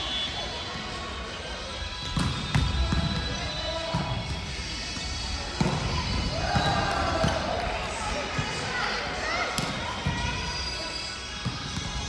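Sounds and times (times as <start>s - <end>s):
volleyball thumps: 2.0s - 8.6s.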